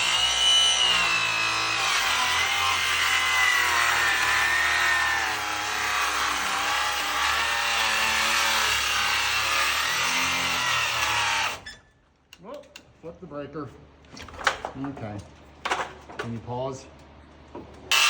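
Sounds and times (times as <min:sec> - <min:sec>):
electric saw cutting wood: 0:00.0 - 0:11.7.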